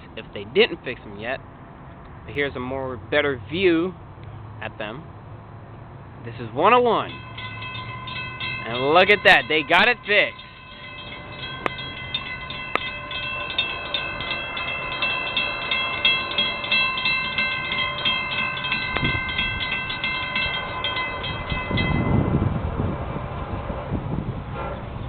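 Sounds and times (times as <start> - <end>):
freight train passing: 3.4 - 25.0
high ringing tones: 6.7 - 22.5.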